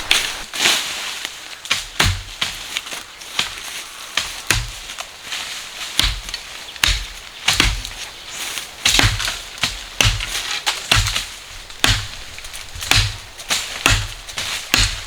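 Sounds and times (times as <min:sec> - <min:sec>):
wood being chopped: 0:01.7 - 0:02.7, 0:04.2 - 0:04.9, 0:06.0 - 0:08.0, 0:08.8 - 0:15.0.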